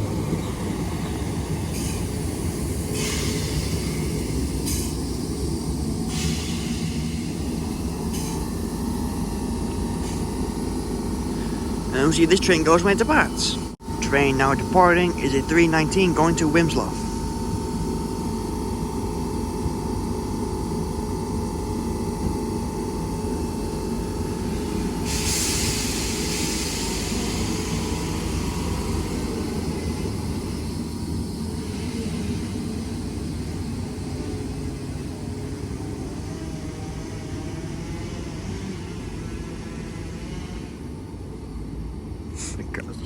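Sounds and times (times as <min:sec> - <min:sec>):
train rumble: 0:00.0 - 0:43.0
train whine: 0:00.0 - 0:43.0
hiss: 0:02.9 - 0:05.0, 0:06.1 - 0:07.4, 0:24.6 - 0:29.6.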